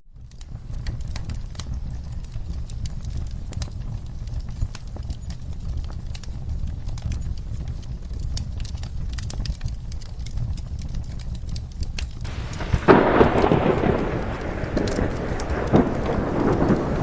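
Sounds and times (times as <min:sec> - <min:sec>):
wood fire crackling: 0:00.1 - 0:17.0
rain rushing: 0:00.4 - 0:17.0
thunder clap: 0:12.2 - 0:17.0.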